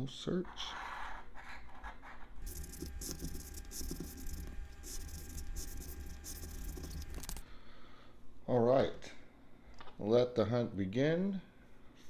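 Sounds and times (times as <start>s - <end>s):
scratching lottery ticket: 2.4s - 7.4s
steady low hum: 2.4s - 7.6s.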